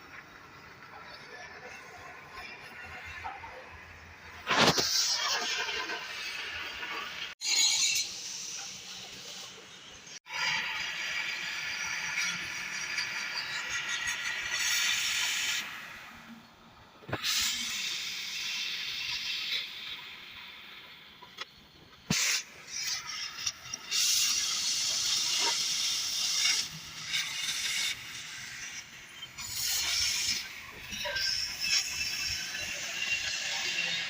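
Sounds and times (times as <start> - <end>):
hissing noise: 4.3 - 10.2, 17.0 - 34.0.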